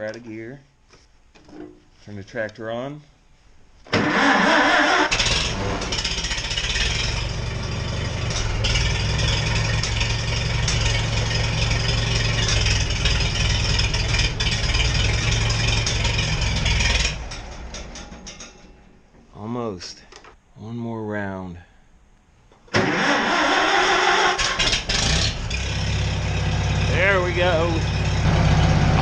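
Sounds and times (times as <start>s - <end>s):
starter whine: 3.8s - 19.3s, 22.5s - 29.0s
starter cranking tractor engine: 3.9s - 18.8s, 22.7s - 29.0s.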